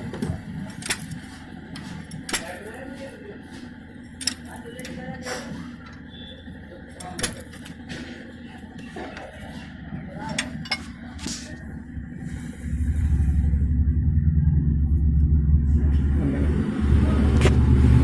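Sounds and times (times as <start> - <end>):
engine starting and rumbling: 0.0 - 18.0
sharp metallic clicks: 4.1 - 5.0.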